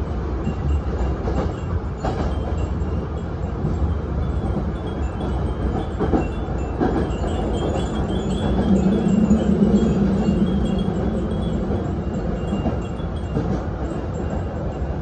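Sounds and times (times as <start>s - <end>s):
electric train rumbling: 0.0s - 15.0s
wind chimes tinkling: 1.5s - 15.0s
wheels knocking on rails: 3.6s - 14.6s.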